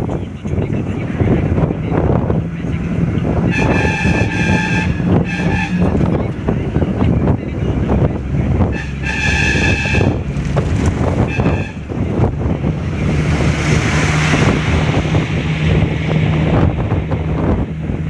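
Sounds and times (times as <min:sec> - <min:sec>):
vehicle engine low rumble: 0:00.0 - 0:18.0
wind buffeting microphone: 0:00.0 - 0:18.0
vehicle horn: 0:03.5 - 0:06.1, 0:08.7 - 0:10.3, 0:11.2 - 0:12.0.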